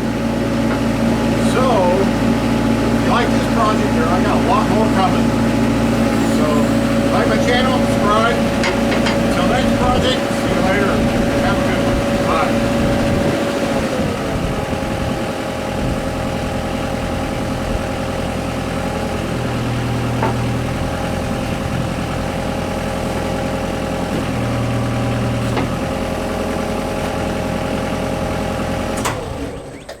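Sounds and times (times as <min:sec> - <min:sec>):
diesel engine idling: 0:00.0 - 0:29.9.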